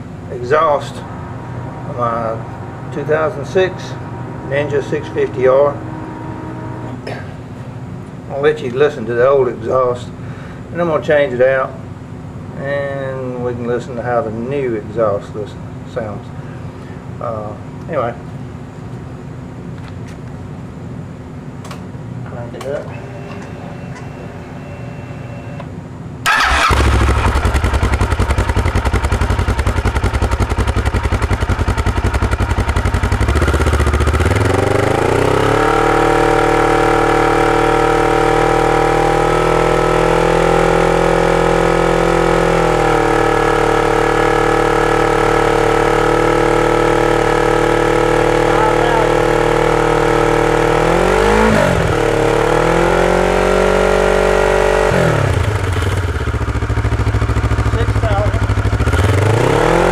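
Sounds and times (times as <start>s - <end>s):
motorcycle engine idling: 26.3s - 40.1s, 55.4s - 59.9s.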